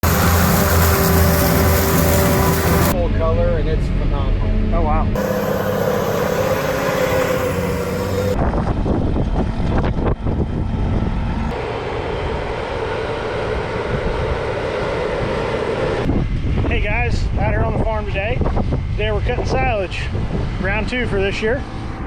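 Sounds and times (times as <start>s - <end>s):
farm machinery engines running: 0.0s - 16.9s.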